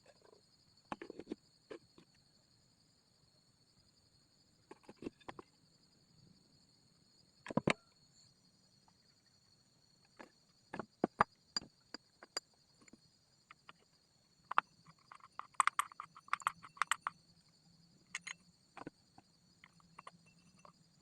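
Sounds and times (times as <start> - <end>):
faint high-pitched whine: 0.0 - 21.0
metallic clicks and knocks of tools: 14.5 - 17.2, 18.1 - 18.9.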